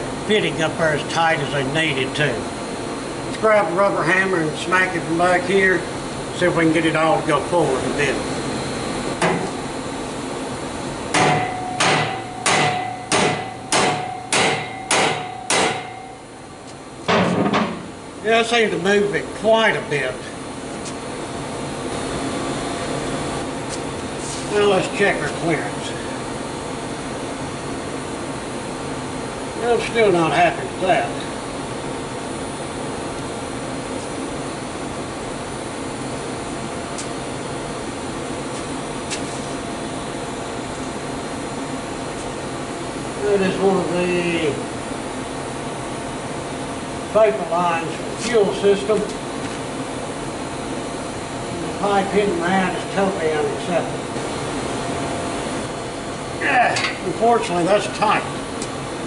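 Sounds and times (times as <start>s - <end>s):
fan humming with whoosh: 0.0s - 59.0s
rubber mallet striking exhaust pipe: 11.1s - 16.1s
metal pipe ringing: 11.2s - 16.3s.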